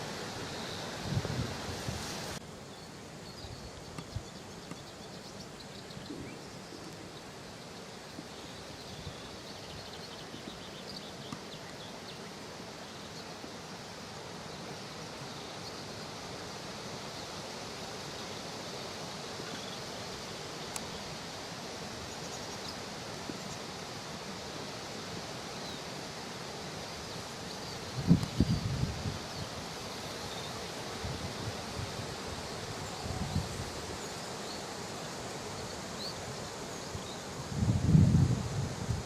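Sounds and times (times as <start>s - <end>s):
outdoor background hiss: 0.0s - 39.0s
faint ticks and rustles: 1.8s - 15.9s, 18.7s - 24.0s, 26.8s - 37.3s.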